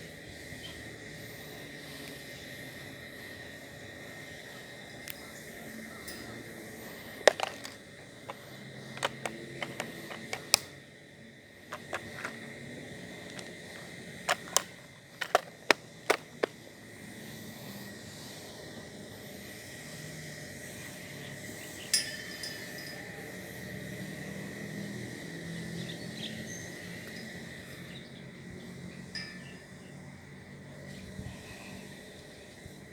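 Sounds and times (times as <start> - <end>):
fishing tackle clicks: 7.3 - 8.4, 9.0 - 10.7, 11.8 - 12.4, 13.3 - 13.5, 14.3 - 16.5.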